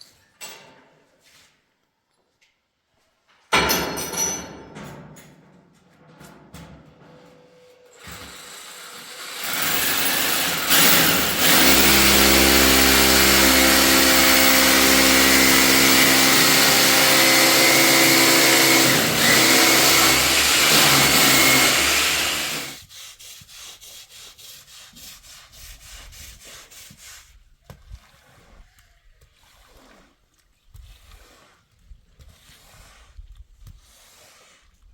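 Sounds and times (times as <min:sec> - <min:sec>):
loud motor machine hissing: 0:08.0 - 0:22.8.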